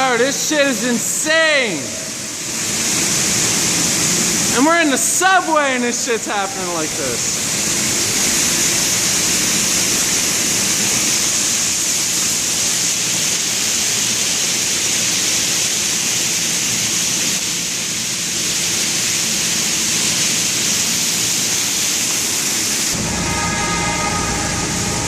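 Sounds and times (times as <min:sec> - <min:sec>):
subway train arriving: 0:00.0 - 0:15.2, 0:20.8 - 0:25.0
water pouring and splashing: 0:00.1 - 0:23.3.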